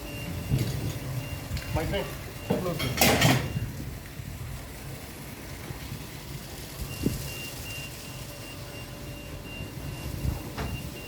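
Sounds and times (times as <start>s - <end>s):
high electronic warning beep: 0.0s - 3.8s, 6.8s - 11.0s.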